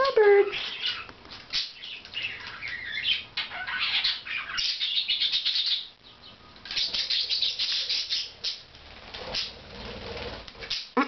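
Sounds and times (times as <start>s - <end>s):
pet birds chirping: 0.0s - 9.6s, 10.6s - 11.0s.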